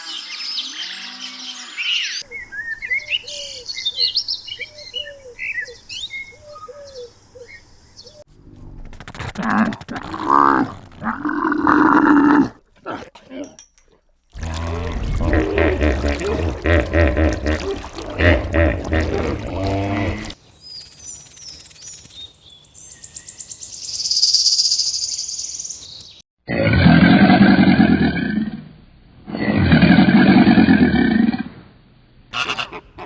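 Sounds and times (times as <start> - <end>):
rapid pulsing animal calls: 8.8 - 11.1
high chirping and whistling: 20.5 - 26.1.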